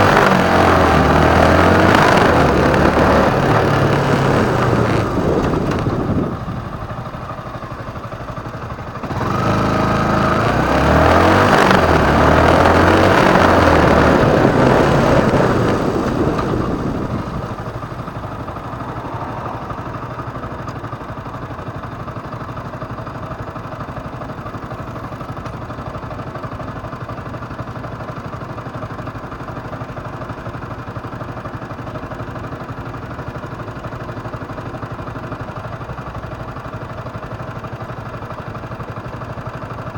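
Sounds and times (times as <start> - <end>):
motorcycle engine accelerating: 0.0 - 27.4.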